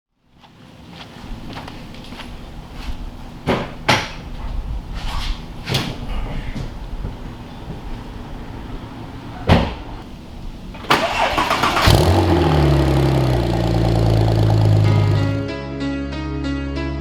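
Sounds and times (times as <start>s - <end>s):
car engine idling: 7.3s - 15.5s
starter cranking: 10.8s - 15.4s.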